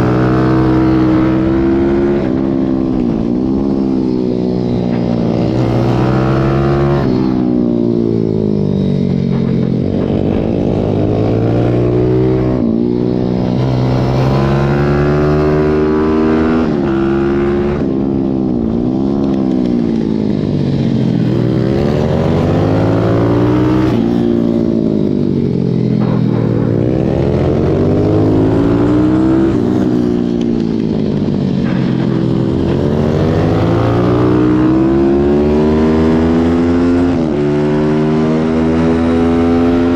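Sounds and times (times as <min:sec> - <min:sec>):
small motorbike engine racing: 0:00.0 - 0:39.9.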